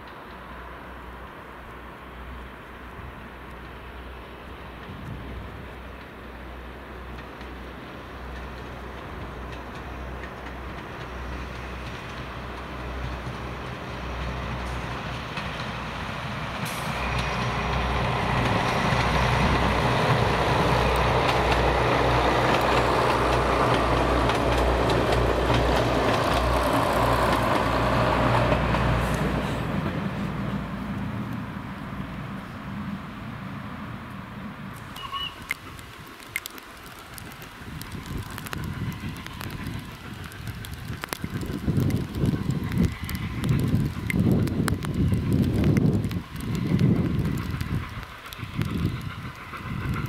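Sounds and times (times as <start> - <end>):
rapid clatter of train: 0.0 - 33.0, 34.7 - 50.0
train passing with low rumble: 0.0 - 50.0.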